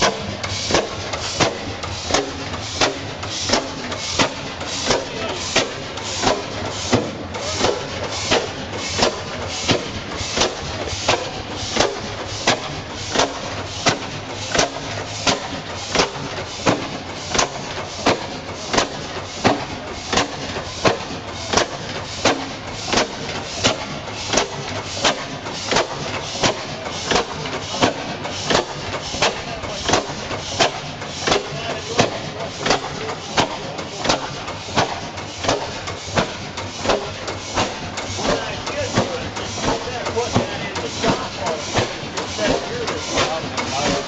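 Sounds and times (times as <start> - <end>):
stationary engine beating steadily: 0.0 - 44.0.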